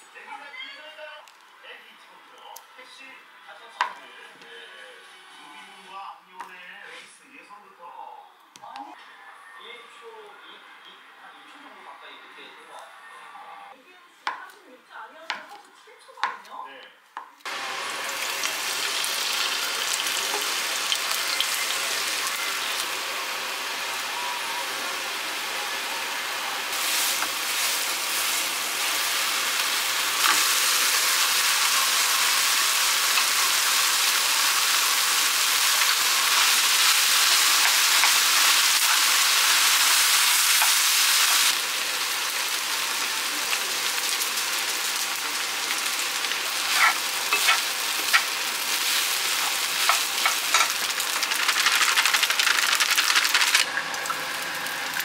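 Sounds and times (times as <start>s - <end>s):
rice sizzling in a wok: 17.4s - 55.0s.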